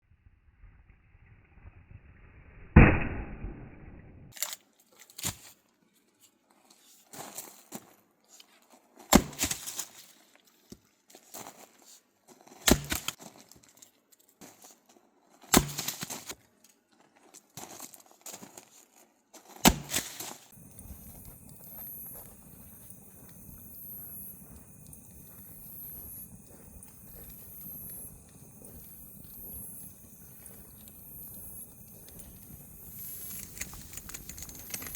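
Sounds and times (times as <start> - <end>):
axe chopping firewood: 9.1 - 9.8, 12.7 - 13.2, 15.5 - 16.4, 19.6 - 20.4.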